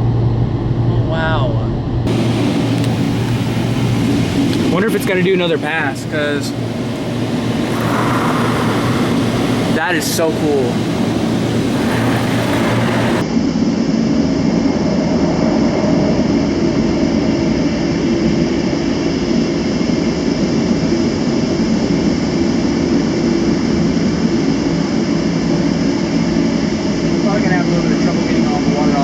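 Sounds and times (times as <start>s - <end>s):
air dryer blowers running: 2.1s - 13.2s.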